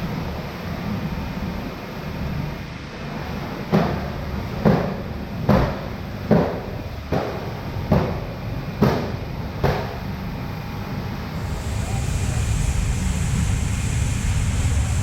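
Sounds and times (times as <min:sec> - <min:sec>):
low rumble: 0:11.3 - 0:15.0.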